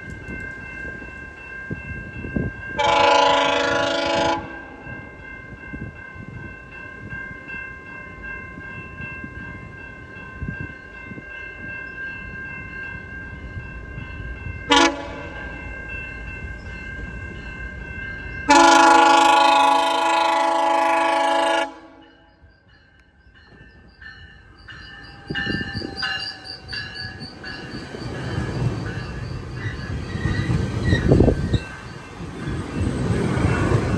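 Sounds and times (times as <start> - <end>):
train horn blasts: 2.8 - 4.8, 14.7 - 15.4, 18.5 - 22.3
train rumble: 23.2 - 33.9.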